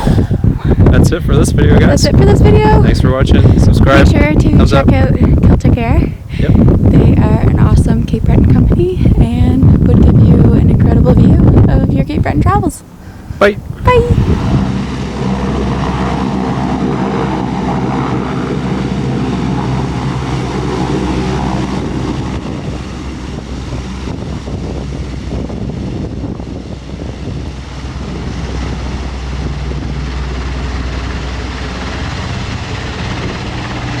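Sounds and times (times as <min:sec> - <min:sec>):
helicopter running: 0:00.0 - 0:34.0.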